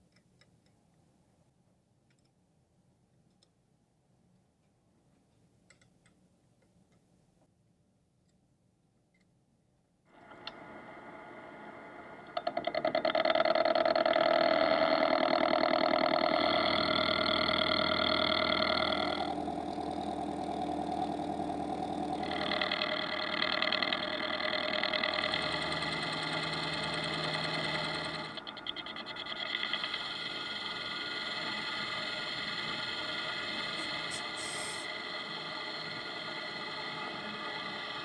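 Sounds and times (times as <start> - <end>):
machine tool whining: 10.2 - 38.0.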